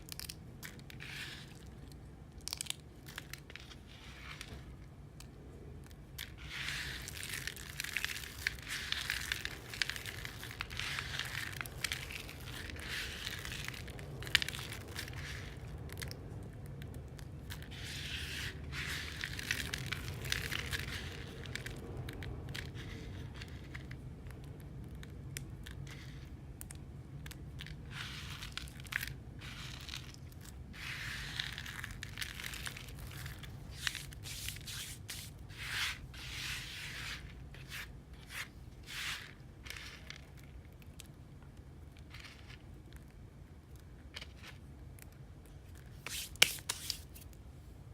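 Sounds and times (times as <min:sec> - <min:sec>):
dry soap being crushed: 0:00.0 - 0:03.7, 0:06.2 - 0:17.8.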